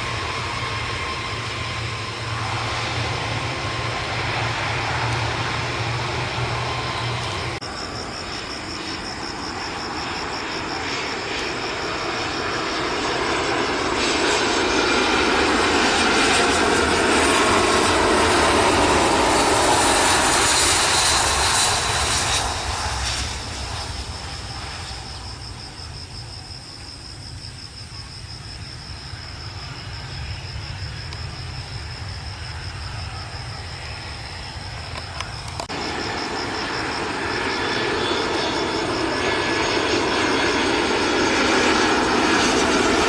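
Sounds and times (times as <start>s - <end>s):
airliner jet engines landing: 0.0s - 43.0s.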